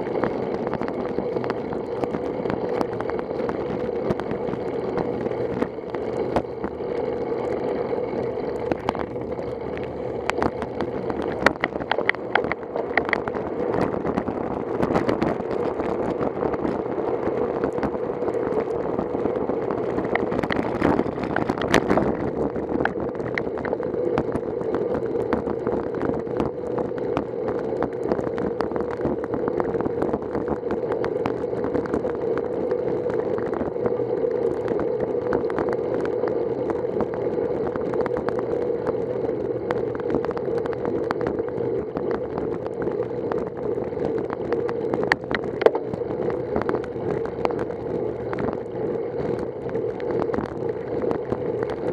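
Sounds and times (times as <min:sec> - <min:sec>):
wind and road noise: 0:00.0 - 0:51.9.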